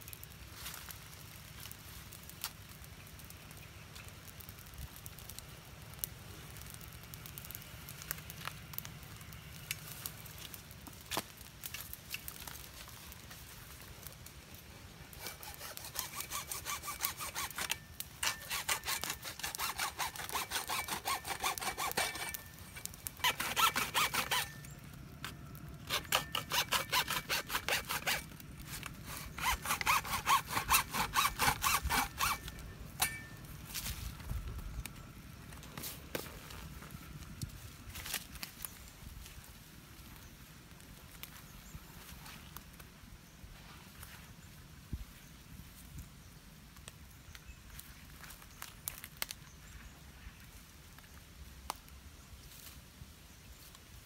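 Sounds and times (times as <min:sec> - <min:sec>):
hand saw cutting: 0:15.1 - 0:24.6, 0:25.9 - 0:33.3.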